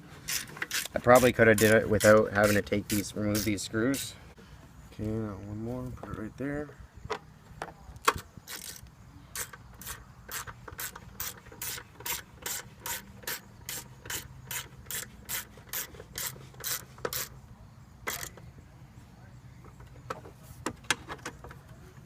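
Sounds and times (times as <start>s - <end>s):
ratchet clicking: 0.3s - 4.1s, 8.1s - 17.4s, 18.0s - 18.4s.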